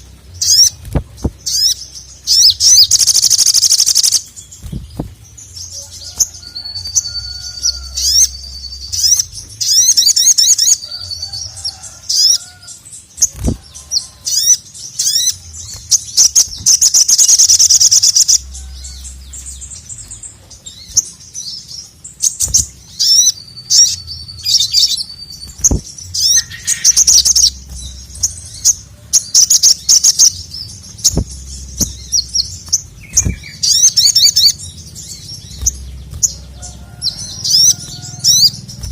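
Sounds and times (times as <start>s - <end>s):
sunbird singing: 0.0s - 38.9s.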